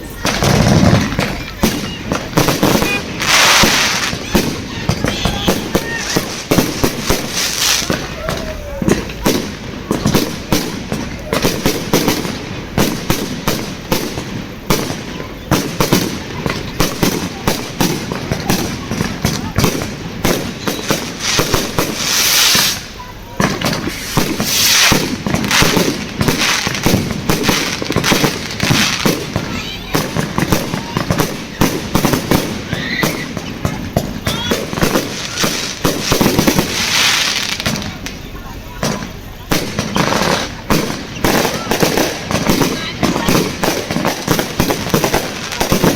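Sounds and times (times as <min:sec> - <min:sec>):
background rumble: 0:00.0 - 0:36.9
fireworks bangs: 0:00.0 - 0:45.9
fireworks crackling: 0:00.0 - 0:45.9
fireworks whistles: 0:00.0 - 0:45.9.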